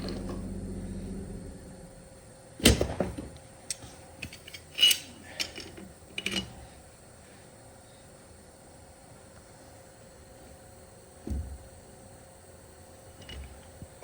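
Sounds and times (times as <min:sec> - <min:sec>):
metal tools clanking: 0:04.2 - 0:06.6.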